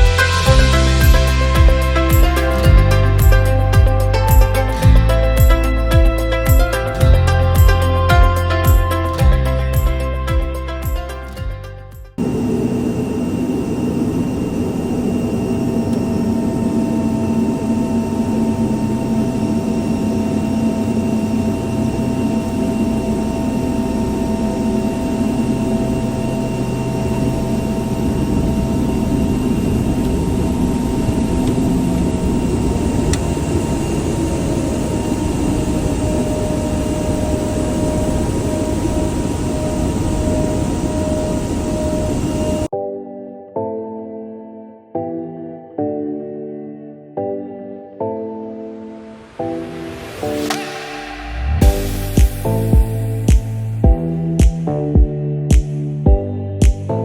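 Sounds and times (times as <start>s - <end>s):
turboprop engines droning: 12.2s - 42.7s.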